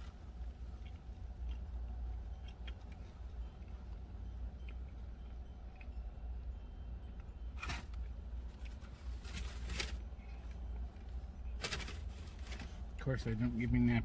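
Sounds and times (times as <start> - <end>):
low steady rumble: 0.0 - 14.0
paper wrapping rustling: 8.7 - 10.0, 11.6 - 12.8.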